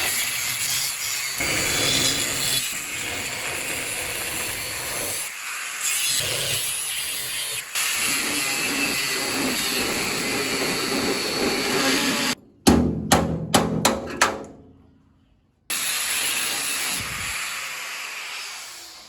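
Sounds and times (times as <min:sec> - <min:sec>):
power tool running: 0:00.0 - 0:12.4
metal-on-metal knocks: 0:12.4 - 0:14.8.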